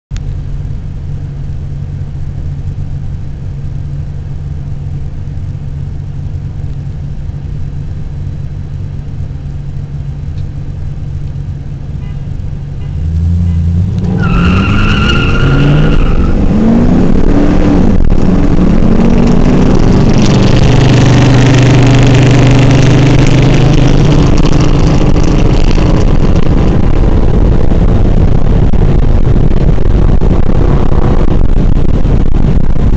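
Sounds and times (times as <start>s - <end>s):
car engines idling and revving: 0.1s - 32.9s
tire squeal: 12.0s - 16.9s.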